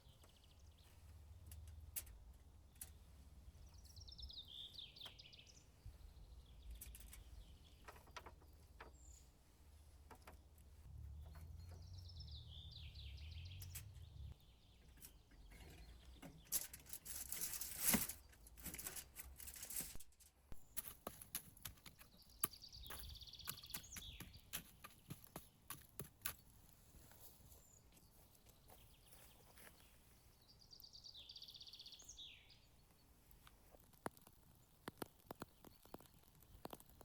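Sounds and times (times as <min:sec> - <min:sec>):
sharp clicks and crackles: 0:01.4 - 0:03.0, 0:15.0 - 0:26.6, 0:33.3 - 0:37.0.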